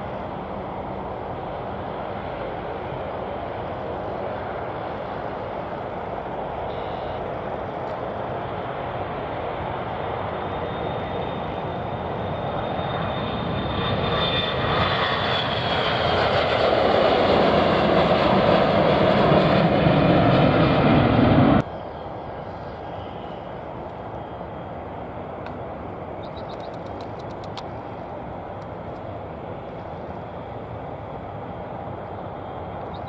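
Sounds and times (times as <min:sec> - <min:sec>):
aircraft engines passing: 0:00.0 - 0:33.0.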